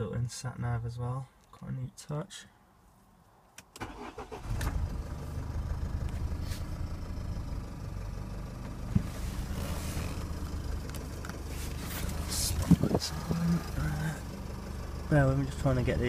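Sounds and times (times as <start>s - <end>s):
diesel engine starting and idling: 3.8s - 16.0s.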